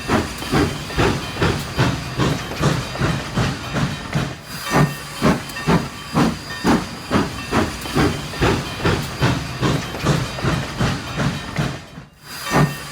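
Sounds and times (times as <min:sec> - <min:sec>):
steam locomotive chuffing: 0:00.0 - 0:12.9.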